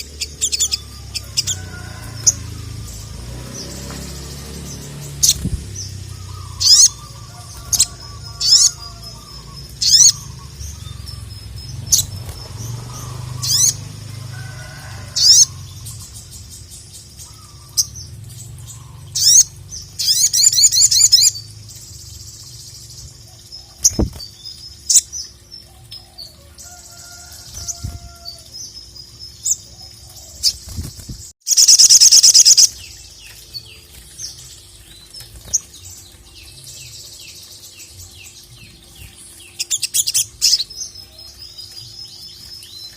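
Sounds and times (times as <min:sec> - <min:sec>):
songbird calling: 0:00.0 - 0:13.8, 0:17.2 - 0:21.4.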